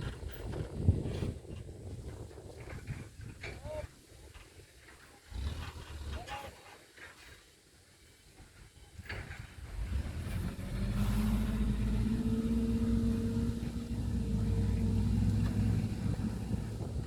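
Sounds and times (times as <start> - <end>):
vehicle engine running: 9.8 - 17.0.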